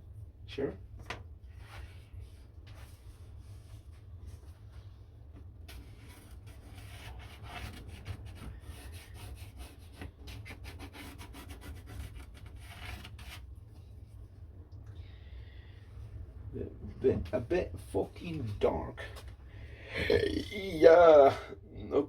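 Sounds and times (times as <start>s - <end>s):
low steady hum: 0.0s - 22.0s
rubbing and scraping on wood: 5.6s - 13.9s.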